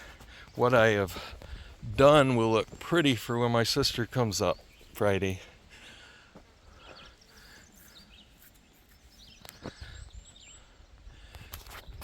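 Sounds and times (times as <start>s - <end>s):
faint bird chirps: 4.2s - 12.0s.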